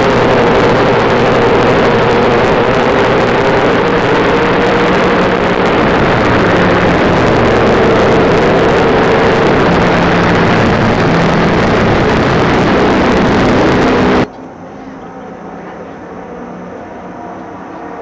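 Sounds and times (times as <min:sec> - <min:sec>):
race car engine: 0:00.0 - 0:14.3.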